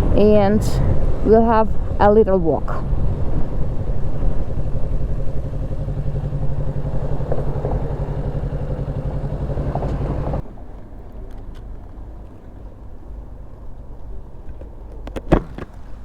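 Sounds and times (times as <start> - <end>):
motorcycle engine running: 2.7 - 10.4.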